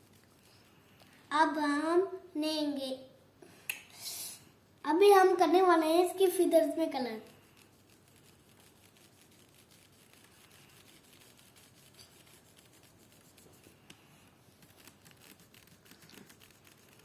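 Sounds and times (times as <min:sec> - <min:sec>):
marker strokes on paper: 0:00.0 - 0:01.1, 0:05.9 - 0:17.0.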